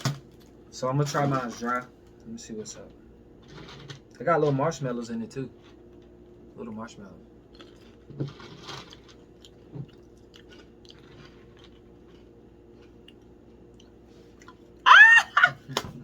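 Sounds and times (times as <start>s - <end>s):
cereal crunching: 7.5s - 13.0s
faint chewing: 7.5s - 14.7s.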